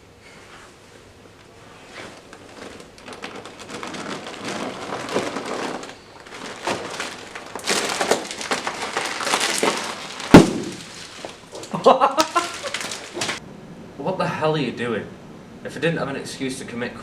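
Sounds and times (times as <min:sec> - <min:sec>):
snack crackling and crunching: 0:02.2 - 0:13.4.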